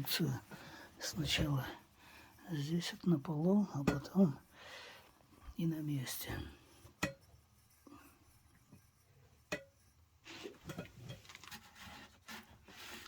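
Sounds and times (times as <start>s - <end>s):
rustling and small knocks: 6.3s - 13.0s.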